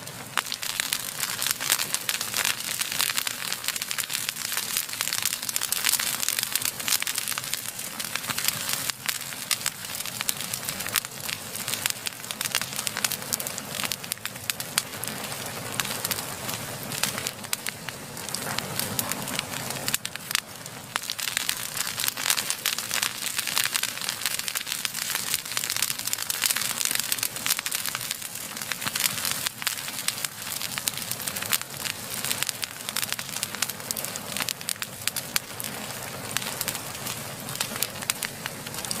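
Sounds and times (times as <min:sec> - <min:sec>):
fire crackling: 0:00.0 - 0:39.0.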